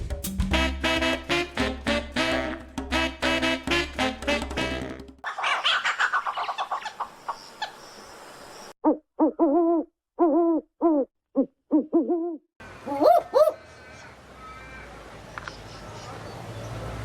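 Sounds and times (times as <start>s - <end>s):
owl hooting: 11.7s - 14.8s.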